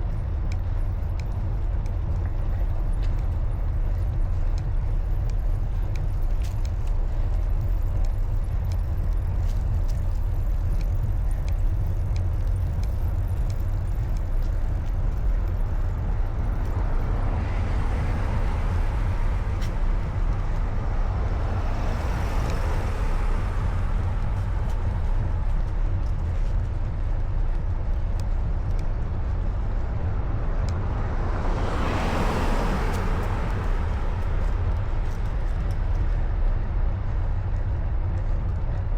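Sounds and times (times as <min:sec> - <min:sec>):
road traffic passing: 0:00.0 - 0:38.9
wind rumble on microphone: 0:00.0 - 0:38.9.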